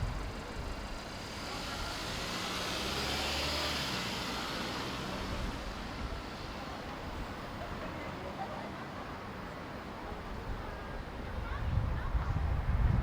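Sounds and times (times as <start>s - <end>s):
street noise: 0.0s - 13.0s
vehicle passing by: 1.0s - 6.8s.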